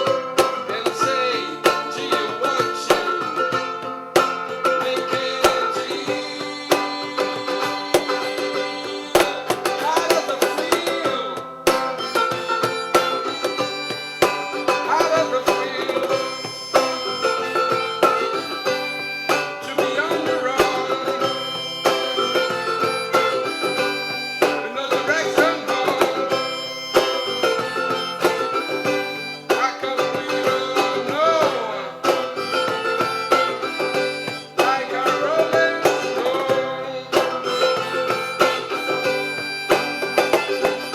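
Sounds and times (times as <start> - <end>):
acoustic guitar: 0.0 - 40.9
percussion strikes: 0.0 - 40.9
wavering melody line: 11.8 - 30.9, 32.2 - 35.2.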